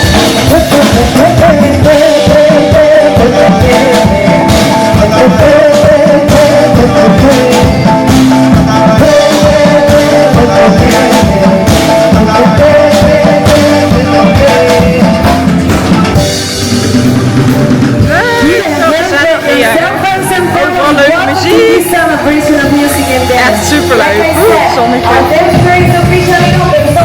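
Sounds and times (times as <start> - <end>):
upbeat latin dance music: 0.0 - 27.0.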